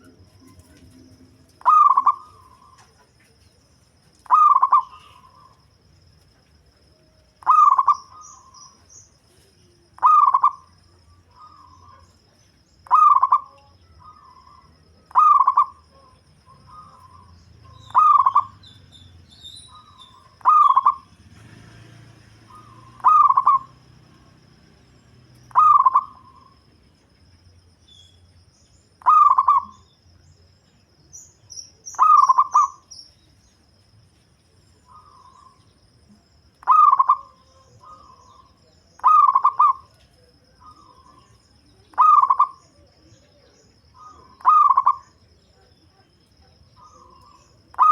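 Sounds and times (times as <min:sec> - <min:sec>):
dove cooing: 0:00.0 - 0:03.6, 0:04.2 - 0:05.6, 0:07.4 - 0:12.2, 0:12.8 - 0:19.0, 0:19.6 - 0:26.6, 0:29.0 - 0:29.8, 0:31.9 - 0:32.9, 0:34.8 - 0:35.7, 0:36.6 - 0:47.9
small birds chirping: 0:00.0 - 0:47.9.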